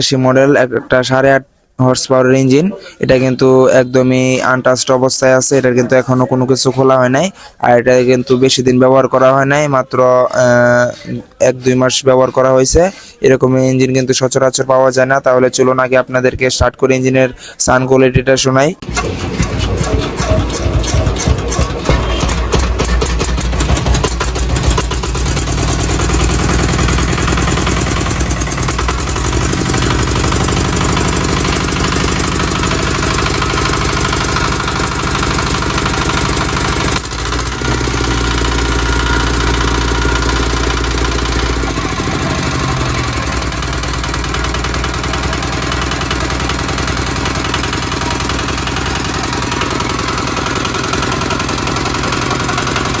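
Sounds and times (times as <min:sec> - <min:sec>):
diesel engine running: 0:18.8 - 0:53.0.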